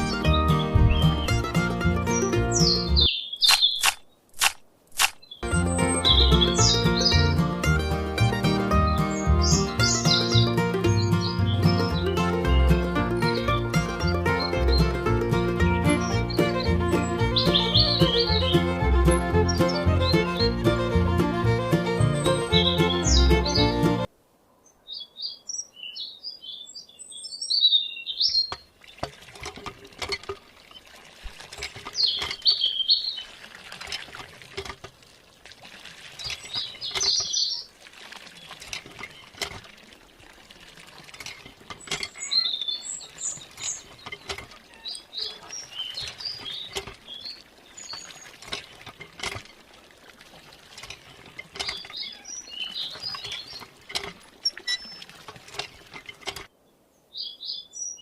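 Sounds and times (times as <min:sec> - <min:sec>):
small birds chirping: 0:00.0 - 0:04.3, 0:05.0 - 0:07.7, 0:08.4 - 0:15.0, 0:15.8 - 0:20.6, 0:21.9 - 0:29.1, 0:30.6 - 0:33.4, 0:36.1 - 0:39.4, 0:41.4 - 0:48.8, 0:51.0 - 0:55.2, 0:56.5 - 0:58.0
sharp clicks: 0:03.4 - 0:05.3.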